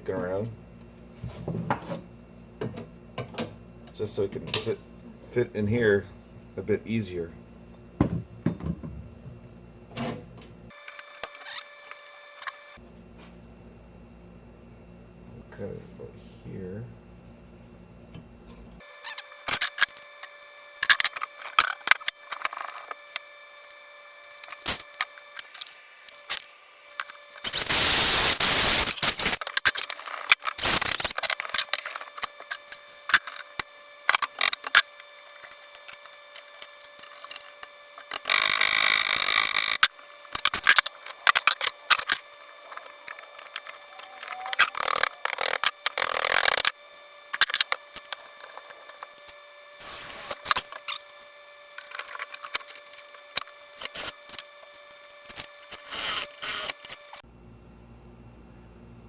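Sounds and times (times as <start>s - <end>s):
metal cutting: 24.3s - 26.4s, 27.4s - 51.1s, 51.7s - 57.2s
drilling metal: 27.4s - 29.4s, 30.6s - 31.2s, 38.1s - 40.8s, 49.7s - 50.8s, 55.3s - 57.1s.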